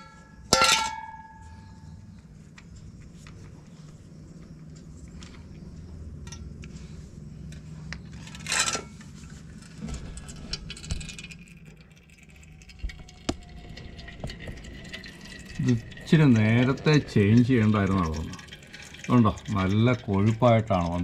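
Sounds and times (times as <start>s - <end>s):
low hum: 0.0s - 21.0s
metallic clatter: 8.1s - 16.9s.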